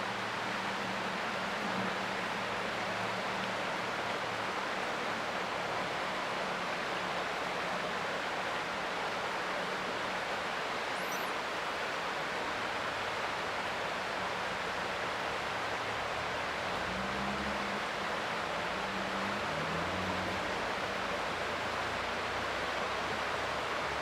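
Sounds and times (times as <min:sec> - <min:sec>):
creek water running: 0:00.0 - 0:24.0
faint high chirp: 0:10.9 - 0:11.4.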